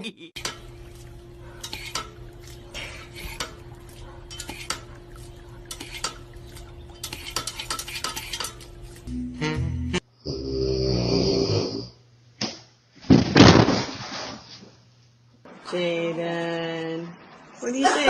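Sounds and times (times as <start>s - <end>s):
clinks and scrapes of hard objects: 1.6s - 9.1s.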